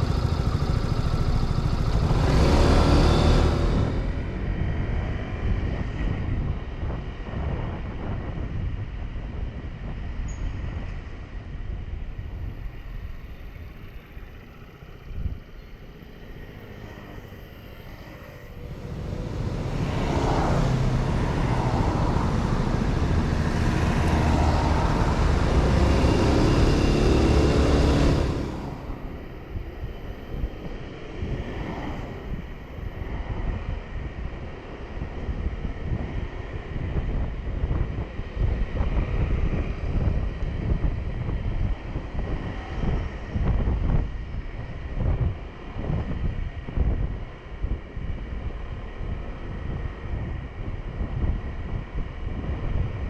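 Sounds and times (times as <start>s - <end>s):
motorcycle engine: 0.0s - 5.6s, 13.2s - 30.5s
road noise: 0.0s - 53.0s
wind noise: 0.0s - 53.0s.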